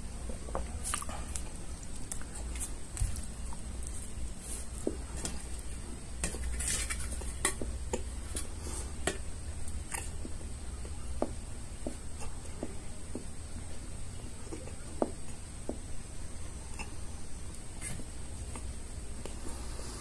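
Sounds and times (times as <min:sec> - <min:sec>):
steady low hum: 0:00.0 - 0:20.0
chewing with wet mouth clicks: 0:00.8 - 0:04.0, 0:09.0 - 0:10.3.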